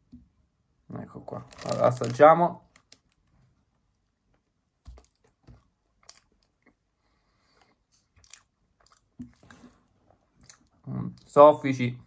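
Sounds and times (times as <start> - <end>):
person chewing soft food: 4.9 - 10.8.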